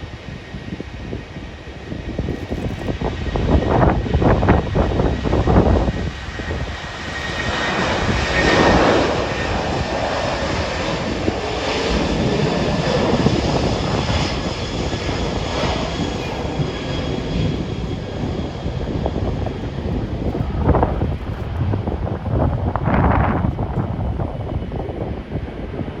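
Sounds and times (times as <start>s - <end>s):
jet engines roaring on takeoff: 0.0s - 26.0s.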